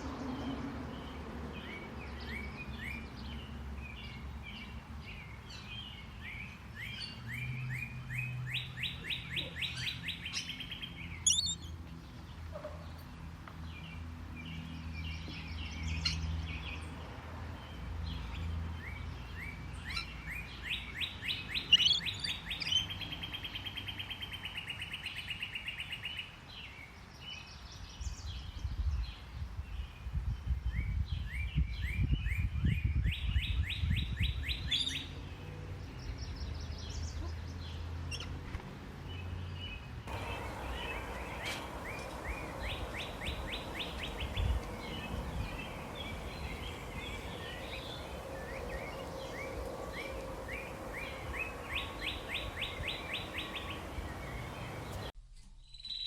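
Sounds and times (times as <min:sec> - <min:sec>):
songbirds trilling and chirping: 0:00.0 - 0:55.2
steady low hum: 0:40.1 - 0:55.1.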